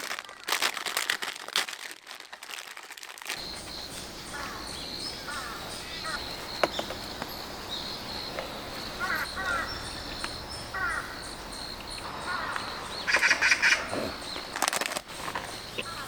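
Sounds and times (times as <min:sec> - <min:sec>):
birds making harsh calls: 0:03.3 - 0:16.0.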